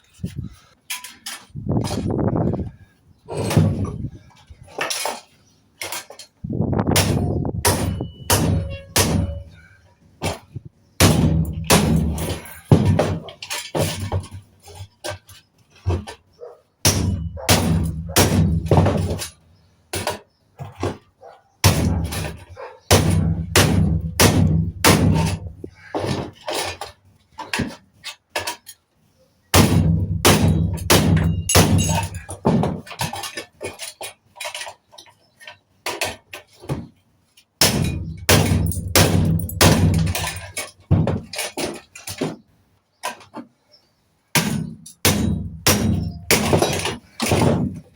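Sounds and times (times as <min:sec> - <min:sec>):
hammer striking scrap metal: 0:03.3 - 0:04.1, 0:06.9 - 0:09.6, 0:11.0 - 0:14.8, 0:16.9 - 0:19.4, 0:21.6 - 0:26.8, 0:29.6 - 0:33.4, 0:37.6 - 0:42.4, 0:44.4 - 0:47.9.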